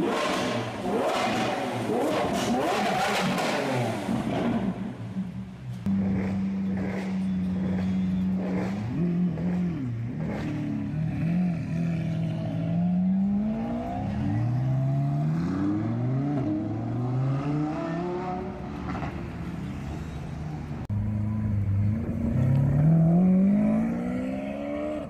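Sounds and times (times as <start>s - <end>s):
sports car engine accelerating: 5.8s - 19.1s, 20.9s - 25.0s.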